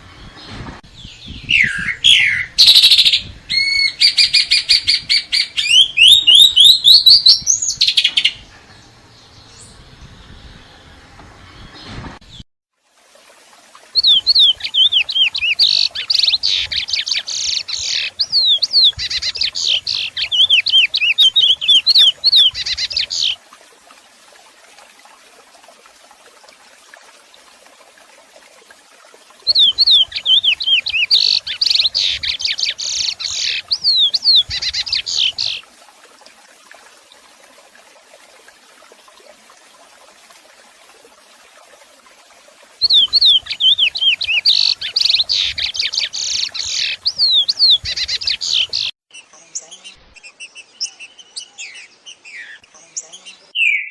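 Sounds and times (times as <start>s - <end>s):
songbird singing: 0.0s - 10.8s, 13.9s - 23.4s, 29.4s - 35.6s, 42.8s - 53.9s.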